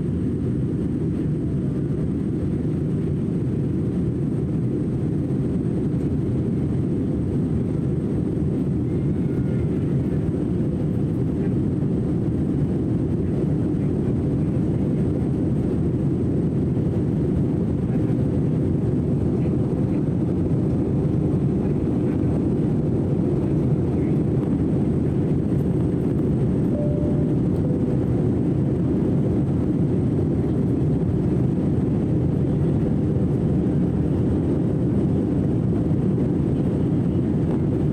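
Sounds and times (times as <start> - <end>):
airliner cabin rumble: 0.0 - 37.9.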